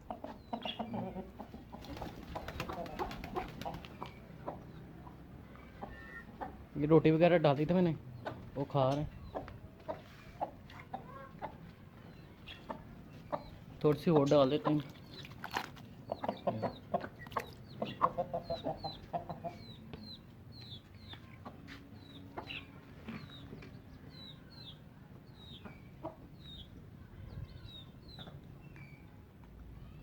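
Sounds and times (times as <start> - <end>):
hen clucking: 0.0 - 6.7, 9.2 - 11.6, 12.4 - 14.9, 16.0 - 23.5
chicks peeping: 0.0 - 15.4, 16.0 - 28.4.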